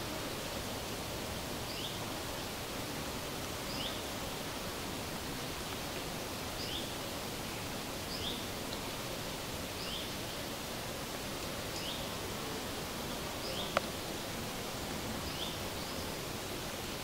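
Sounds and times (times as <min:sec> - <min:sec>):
steady rustling hiss: 0:00.0 - 0:17.0.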